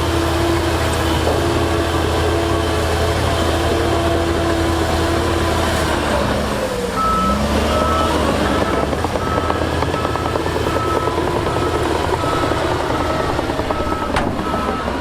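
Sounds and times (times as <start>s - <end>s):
heavy diesel machinery running: 0.0s - 15.0s
reversing alarm beeping: 6.9s - 15.0s.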